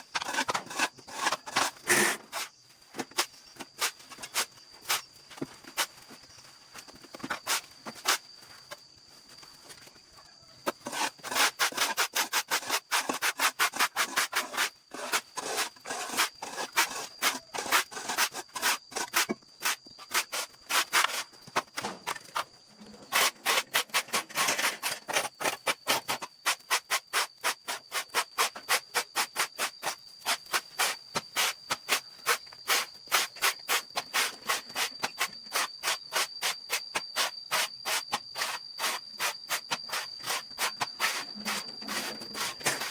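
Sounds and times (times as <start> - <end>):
faint high whine: 13.0 - 42.9.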